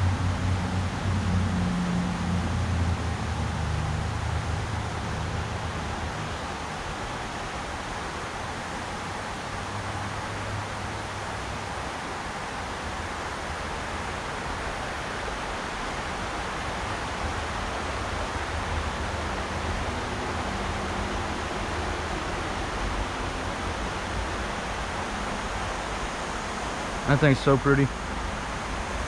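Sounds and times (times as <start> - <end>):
river water rushing: 0.0 - 29.0.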